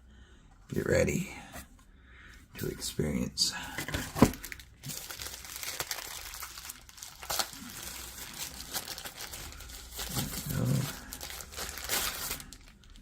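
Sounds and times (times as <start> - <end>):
packaging crinkling: 3.8 - 13.0.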